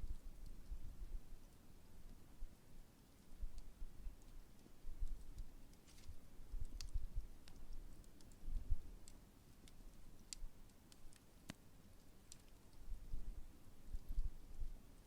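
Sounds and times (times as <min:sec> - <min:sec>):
campfire crackling and popping: 0:03.2 - 0:13.2.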